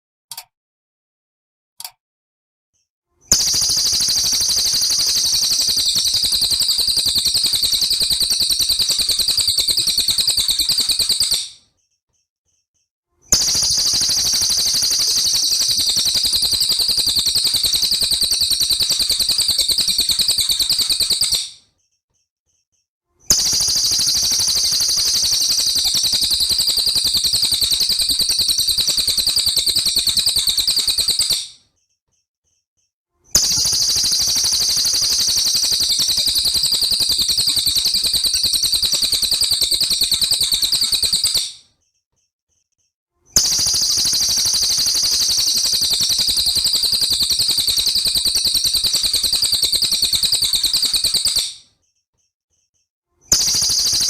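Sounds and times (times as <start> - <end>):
songbird high-pitched trilling: 3.3 - 11.6, 13.3 - 21.6, 23.3 - 31.5, 33.4 - 41.5, 43.4 - 51.6.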